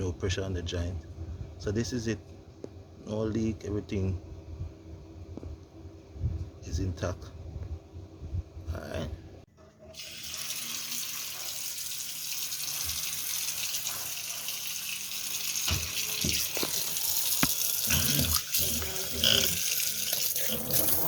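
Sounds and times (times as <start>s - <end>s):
water running from a tap: 10.0s - 21.0s.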